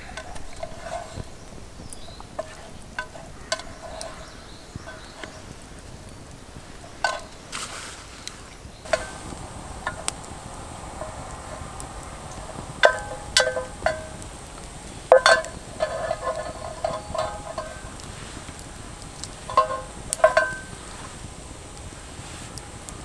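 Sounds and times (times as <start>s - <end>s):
light metal clinks: 8.8s - 23.0s.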